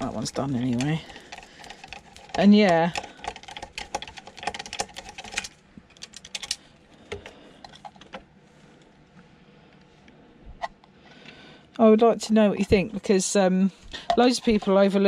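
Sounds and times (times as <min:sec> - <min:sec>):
hand tools clicking on metal casing: 0:00.0 - 0:06.6.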